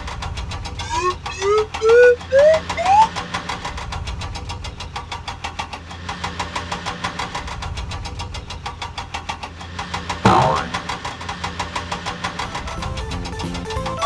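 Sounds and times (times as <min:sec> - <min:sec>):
cartoon engine chugging: 0:00.7 - 0:03.4, 0:12.2 - 0:14.0
rising whistle-like glide: 0:00.8 - 0:03.3.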